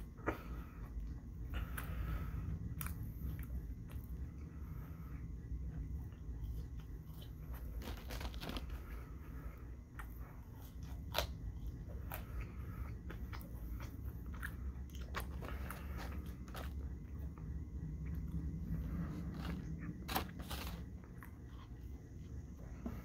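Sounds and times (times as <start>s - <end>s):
low steady hum: 0.0s - 23.0s
person chewing wet mouth sounds: 9.8s - 22.0s.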